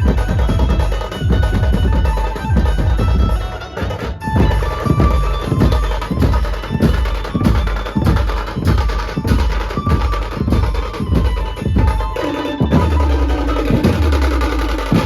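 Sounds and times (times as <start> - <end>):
heavy drum beats: 0.0 - 15.0
short melody notes: 10.3 - 15.0.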